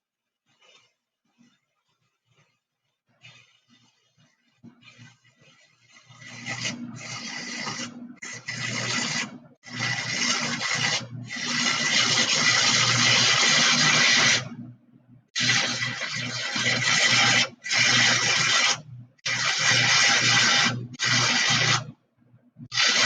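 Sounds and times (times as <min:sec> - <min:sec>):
arc welding crackling and sizzling: 0:04.8 - 0:14.6, 0:15.3 - 0:21.9, 0:22.7 - 0:23.0.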